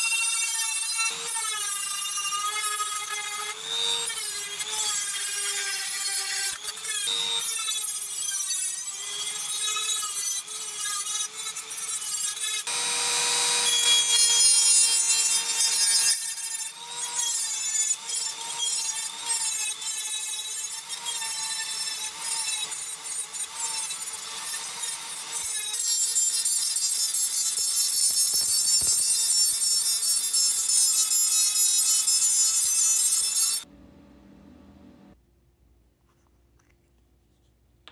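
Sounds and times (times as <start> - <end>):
power tool motor whine: 12.6 - 15.6
gritty abrasive grinding: 27.7 - 31.0.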